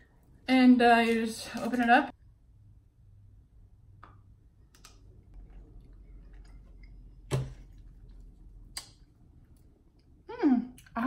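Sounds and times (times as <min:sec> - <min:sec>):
wet mouth clicks: 0:08.7 - 0:09.0.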